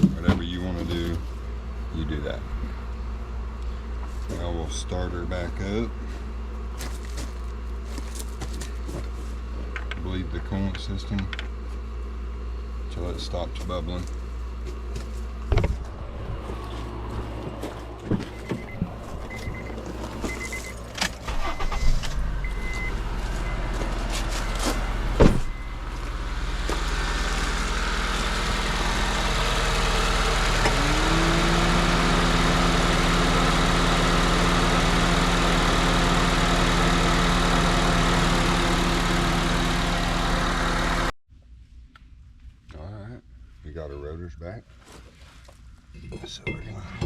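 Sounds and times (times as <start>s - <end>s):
car engine idling: 15.2s - 41.1s
motor whirring: 18.3s - 33.1s.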